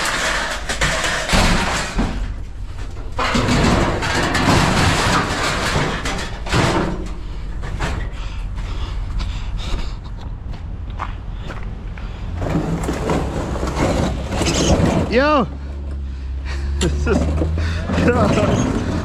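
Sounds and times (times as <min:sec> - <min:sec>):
scrap loaded into truck: 0:00.0 - 0:08.2, 0:12.3 - 0:15.5, 0:16.9 - 0:19.0.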